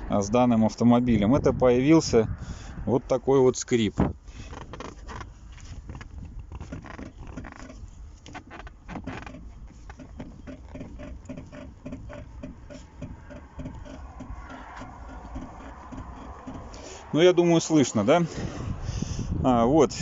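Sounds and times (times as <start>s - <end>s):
suspension squeaking: 3.4s - 20.0s.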